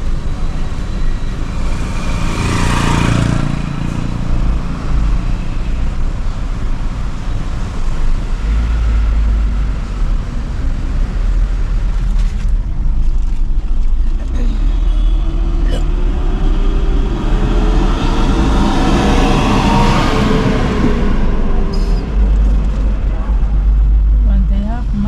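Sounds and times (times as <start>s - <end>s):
car interior road noise: 0.0s - 25.0s
vehicle passing: 1.5s - 5.3s, 14.1s - 25.0s.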